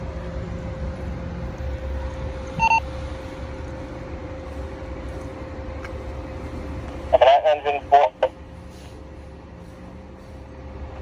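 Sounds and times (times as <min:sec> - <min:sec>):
vehicle engine rumbling: 0:00.0 - 0:11.0
short double beep: 0:02.6 - 0:02.8.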